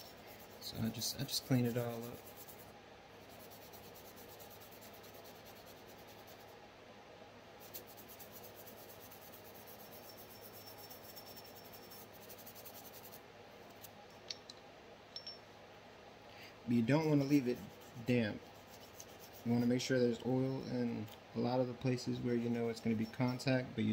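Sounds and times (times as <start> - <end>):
brush scratching on metal: 0.0 - 6.6, 7.6 - 13.9, 17.0 - 20.6.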